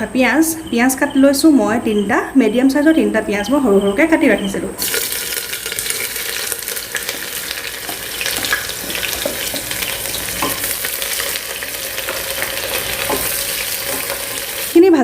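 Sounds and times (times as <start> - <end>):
onions sizzling in hot oil: 4.8 - 14.8
spatula scraping pot: 7.0 - 14.8.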